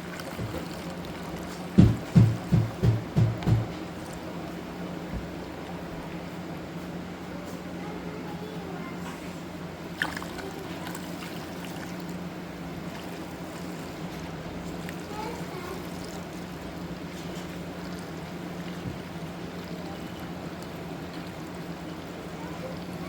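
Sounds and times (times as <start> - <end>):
liquid trickling into tank: 0.0 - 4.8, 9.8 - 23.0.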